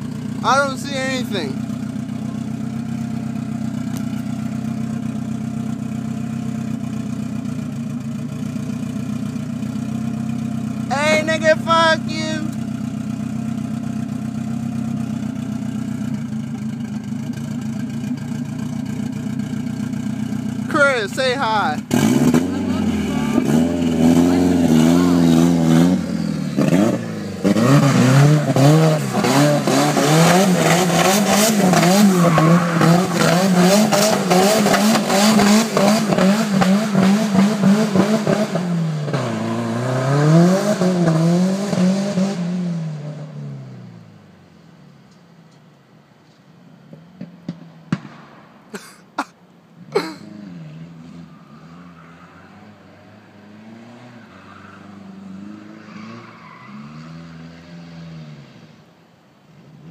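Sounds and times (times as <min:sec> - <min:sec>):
turbocharged engine revving: 0:08.4 - 0:43.6
sharp cracks: 0:47.2 - 0:49.2.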